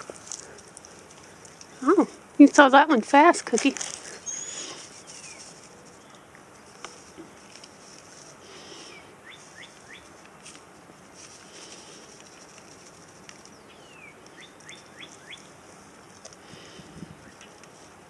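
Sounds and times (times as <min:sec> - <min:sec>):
birds chirping: 0:00.0 - 0:07.6, 0:08.4 - 0:10.2, 0:13.1 - 0:17.6.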